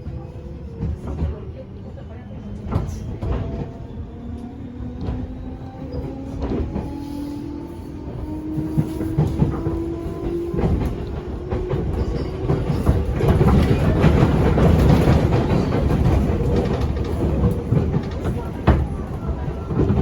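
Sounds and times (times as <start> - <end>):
wheel and rail rumble: 0.0 - 20.0
clacks over rail joints: 8.4 - 20.0.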